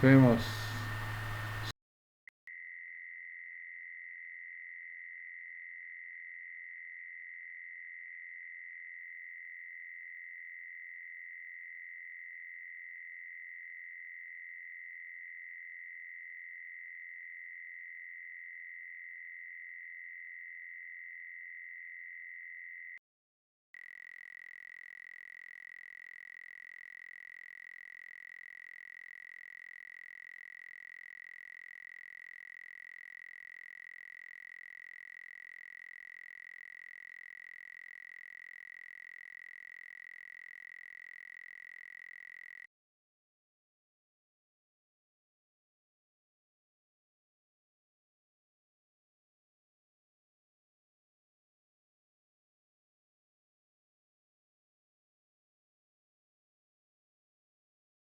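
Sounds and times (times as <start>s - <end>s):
high-pitched electronic tone: 23.8s - 42.6s.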